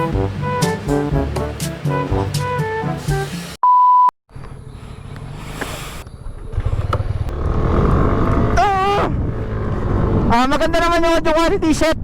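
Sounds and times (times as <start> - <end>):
background music: 0.0 - 3.6
outdoor background: 0.0 - 12.0
loud steady beep: 3.6 - 4.1
motorcycle engine running: 4.3 - 10.5.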